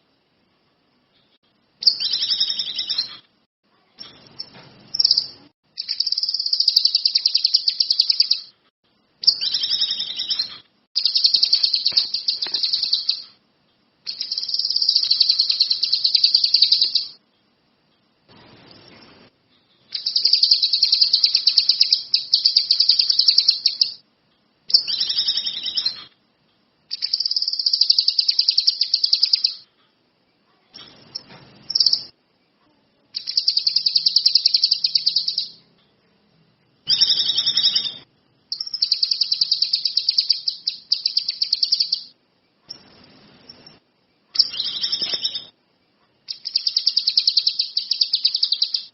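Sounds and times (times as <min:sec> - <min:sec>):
songbird chattering trills: 0:04.0 - 0:08.5, 0:09.2 - 0:13.4, 0:14.1 - 0:17.2, 0:19.9 - 0:24.0, 0:26.9 - 0:29.6, 0:36.9 - 0:42.1, 0:46.3 - 0:48.9.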